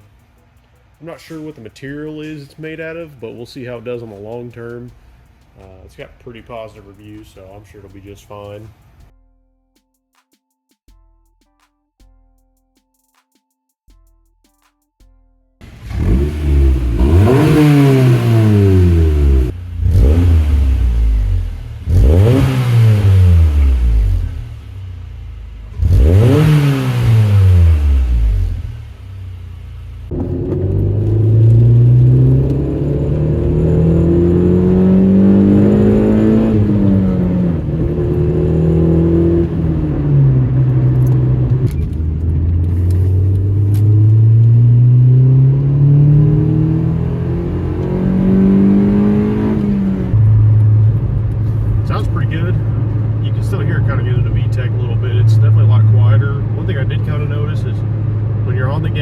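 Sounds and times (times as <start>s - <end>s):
car accelerating through gears: 15.6s - 24.6s, 25.7s - 28.8s, 30.1s - 59.0s
car engine revving: 15.6s - 59.0s.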